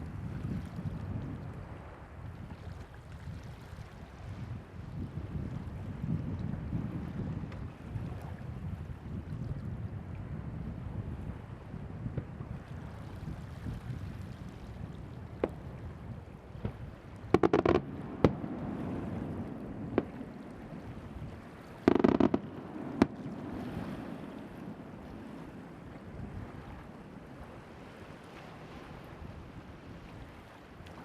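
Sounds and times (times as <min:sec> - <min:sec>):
wind: 0:00.0 - 0:31.0
surf: 0:10.8 - 0:31.0
fireworks crackling bangs: 0:16.6 - 0:20.7, 0:21.8 - 0:24.9
sharp firework bangs: 0:17.4 - 0:19.2, 0:21.9 - 0:23.6.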